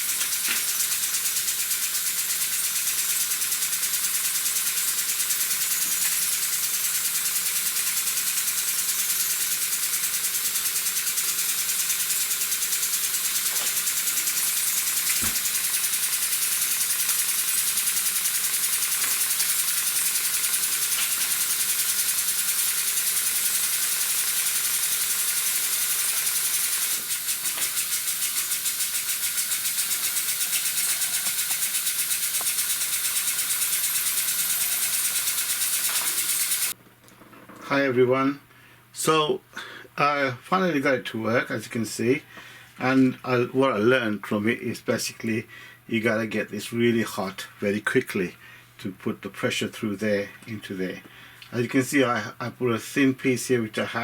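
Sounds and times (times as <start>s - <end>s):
engine strokes pulsing: 0.0s - 36.8s
steam engine hissing: 0.0s - 36.8s.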